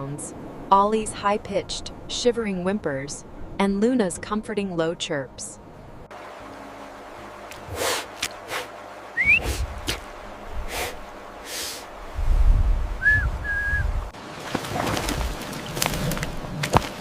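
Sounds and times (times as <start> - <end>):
low rumble: 9.2 - 14.2.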